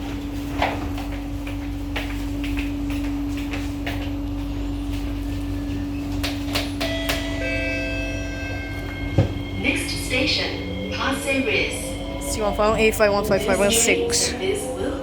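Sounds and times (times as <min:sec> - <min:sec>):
train car hum and rumble: 0:00.0 - 0:15.0
thin steady whines: 0:03.8 - 0:15.0.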